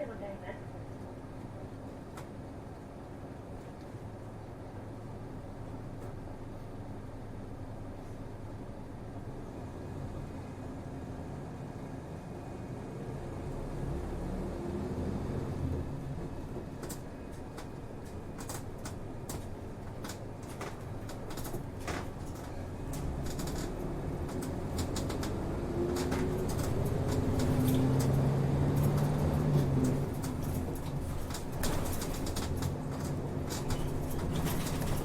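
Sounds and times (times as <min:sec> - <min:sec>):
bus diesel engine droning: 0:00.0 - 0:35.0
cabin fittings rattling: 0:17.6 - 0:35.0.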